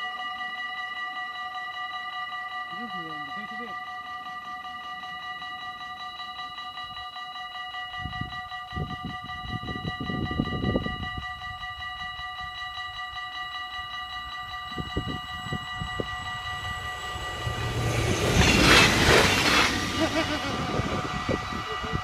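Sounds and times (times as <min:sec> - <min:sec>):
level-crossing bells ringing: 0:00.0 - 0:22.0
diesel train passing: 0:13.7 - 0:22.0.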